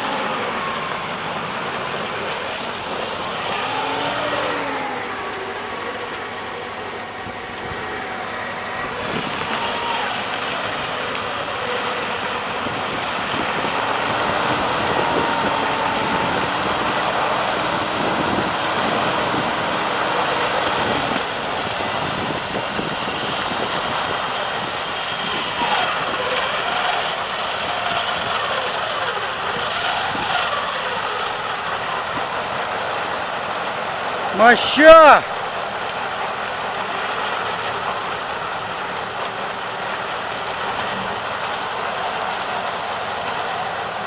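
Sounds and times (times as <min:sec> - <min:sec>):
vehicle engine running: 0:00.0 - 0:34.5, 0:35.2 - 0:44.0.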